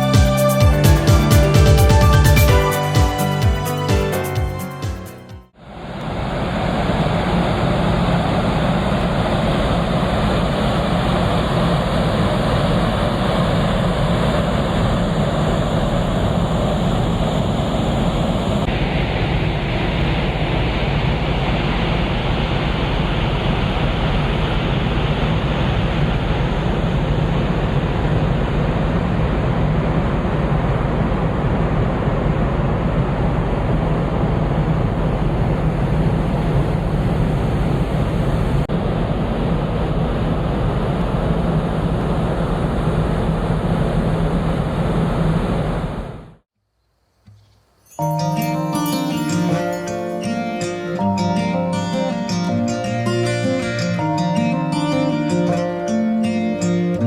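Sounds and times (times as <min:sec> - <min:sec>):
wind and sea water rushing: 0:05.6 - 0:46.4.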